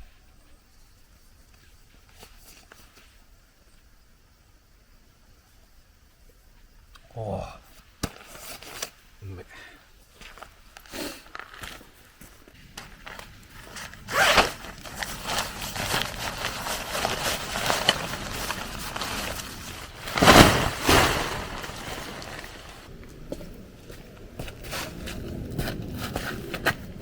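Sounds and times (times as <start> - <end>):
rustling and scraping handling noise: 11.2 - 22.9.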